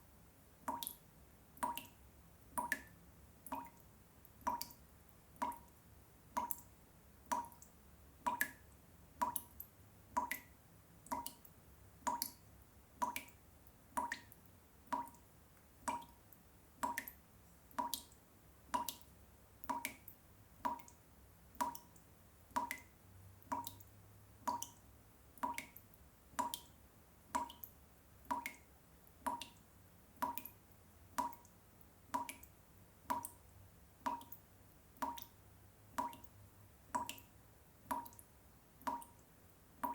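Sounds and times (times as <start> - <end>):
water dripping: 0.6 - 39.9.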